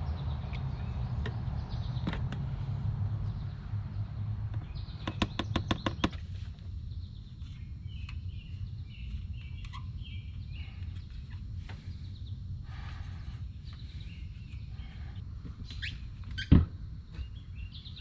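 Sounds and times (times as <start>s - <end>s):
birds chirping: 0.0s - 16.5s, 17.1s - 18.0s.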